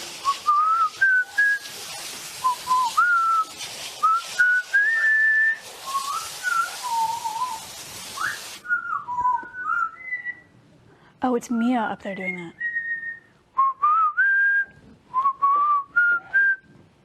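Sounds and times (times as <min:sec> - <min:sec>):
hissing rushes of noise: 0:00.0 - 0:08.7
parrot whistling: 0:08.2 - 0:10.5, 0:12.5 - 0:13.3.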